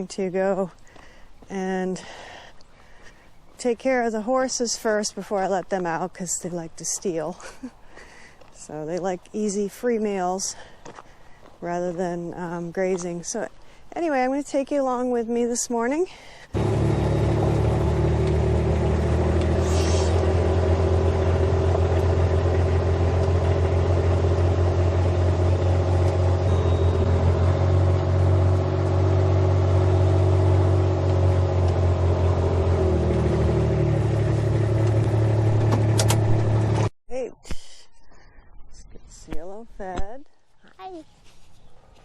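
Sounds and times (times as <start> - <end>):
vehicle engine droning: 16.6 - 36.9.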